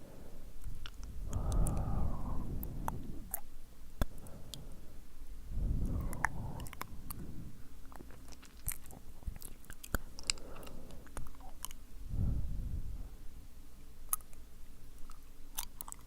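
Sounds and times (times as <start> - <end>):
wet lip and tongue clicks: 0.6 - 2.0, 2.6 - 4.6, 5.8 - 11.8, 14.1 - 14.4, 15.0 - 16.0.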